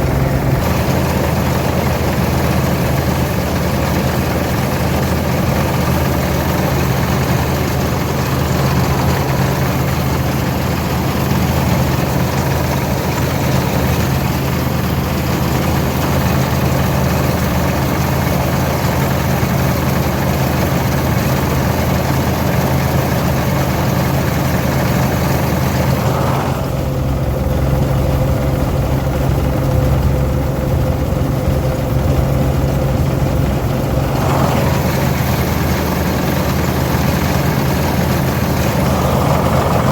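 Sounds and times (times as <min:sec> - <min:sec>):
steady hum: 0:00.0 - 0:16.0, 0:25.8 - 0:39.9
diesel tractor engine drone: 0:00.0 - 0:39.9
combine machinery rattling hiss: 0:00.1 - 0:18.9, 0:24.2 - 0:27.3, 0:33.7 - 0:39.9.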